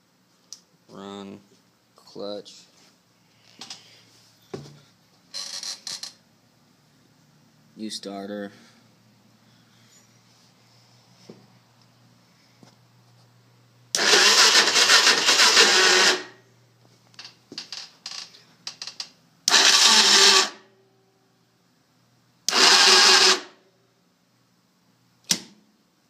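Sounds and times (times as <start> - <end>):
engine starter cranking: 14.0 - 16.4, 19.5 - 20.6, 22.5 - 23.5.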